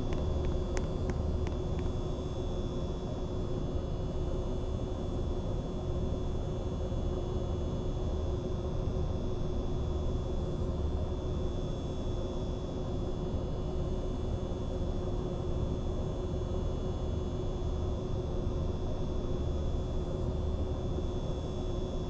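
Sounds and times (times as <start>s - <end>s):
ceiling fan running: 0.0s - 2.0s.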